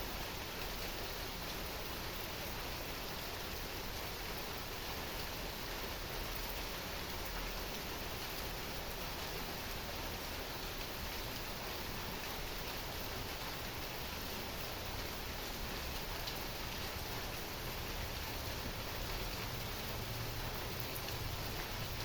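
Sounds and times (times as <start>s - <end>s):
faint raindrop ticks: 18.4s - 22.0s.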